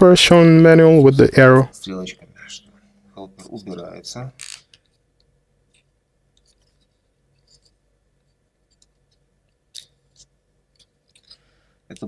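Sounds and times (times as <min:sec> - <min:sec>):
wooden model parts clicking: 0:04.4 - 0:04.8.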